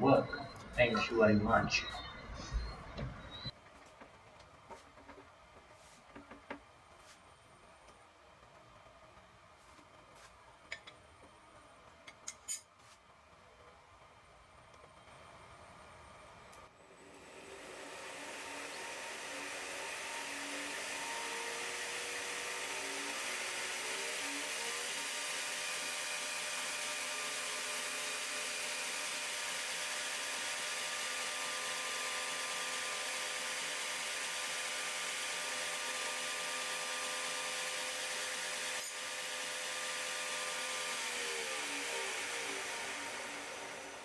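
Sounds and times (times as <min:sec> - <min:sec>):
power tool motor whirring: 0:17.0 - 0:44.0.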